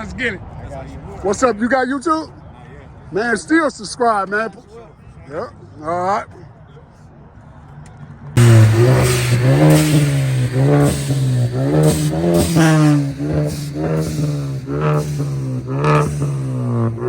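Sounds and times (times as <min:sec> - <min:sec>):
car engine revving: 0:08.4 - 0:17.0.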